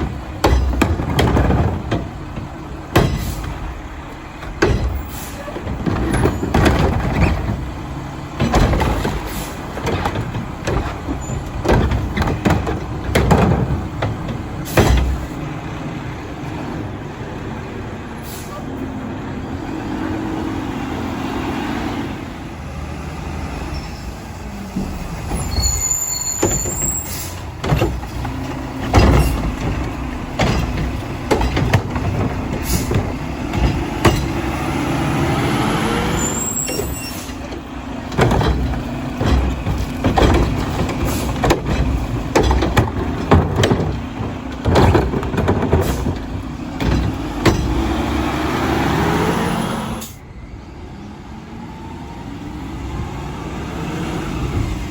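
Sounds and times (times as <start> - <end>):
metal and plastic clanks: 0.0 - 15.5, 24.7 - 34.9, 36.2 - 48.2
diesel engine revving: 0.0 - 54.9.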